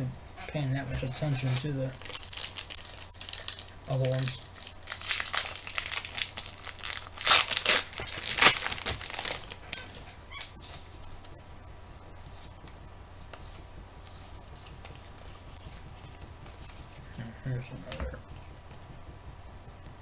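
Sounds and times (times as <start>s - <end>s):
card wrapper crackling and tearing: 1.4s - 10.5s.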